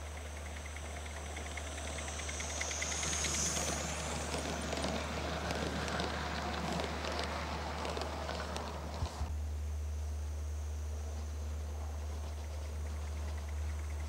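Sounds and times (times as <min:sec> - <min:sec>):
locomotive steam hiss: 0:00.0 - 0:09.3
model locomotive ticking: 0:00.0 - 0:09.3
steady low hum: 0:00.0 - 0:14.0.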